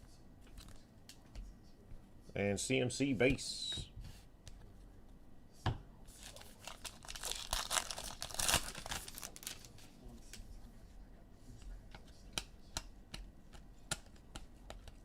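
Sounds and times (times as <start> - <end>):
foil pack crinkling: 6.1 - 9.8.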